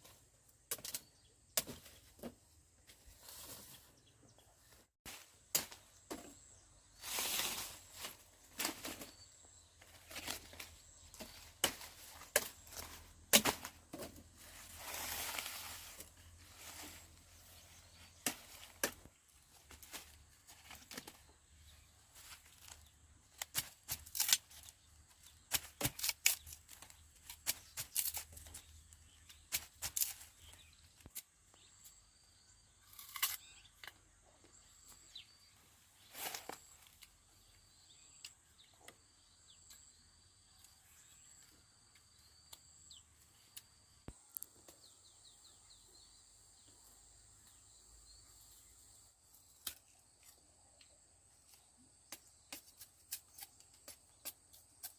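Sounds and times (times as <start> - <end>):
sugarcane stalks cracking and snapping: 10.0 - 14.2, 22.3 - 31.2, 32.8 - 34.0, 49.5 - 50.4.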